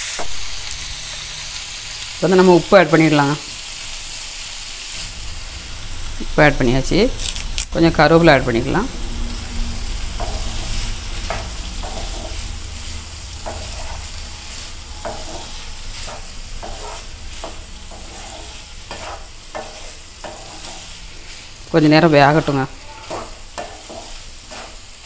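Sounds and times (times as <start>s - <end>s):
liver sizzling in oil: 0.0s - 25.0s
spatula scraping a pan: 9.9s - 25.0s.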